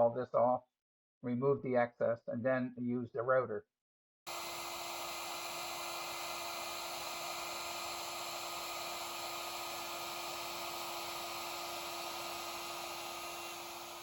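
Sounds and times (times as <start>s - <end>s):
power tool motor hum: 4.3s - 14.0s.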